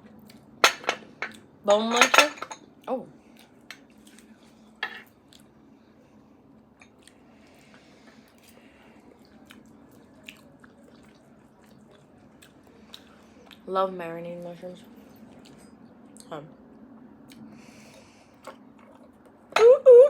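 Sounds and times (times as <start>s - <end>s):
person chewing food: 2.8s - 5.6s, 6.8s - 13.7s, 15.0s - 19.5s.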